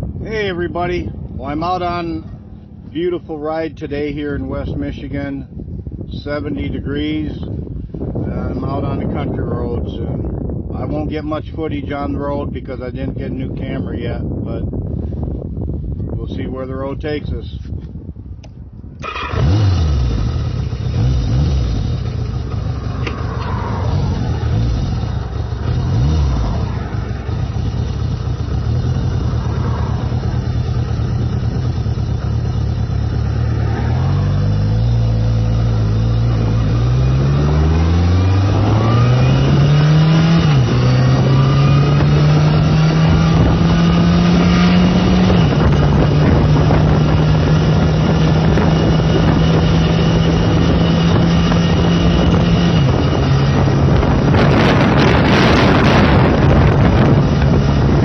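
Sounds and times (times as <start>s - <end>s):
motorcycle engine accelerating: 18.9s - 58.0s.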